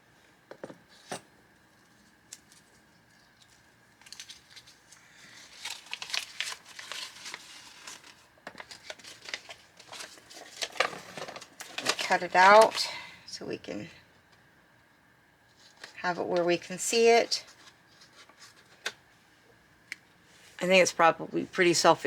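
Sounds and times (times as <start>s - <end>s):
packaging crinkling and rustling: 1.7s - 12.8s.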